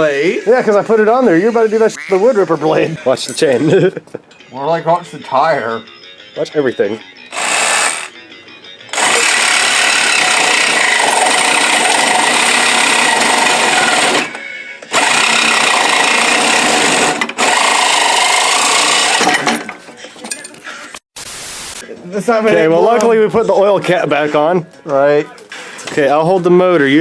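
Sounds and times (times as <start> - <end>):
reciprocating saw cutting: 7.3 - 8.1, 8.9 - 19.4.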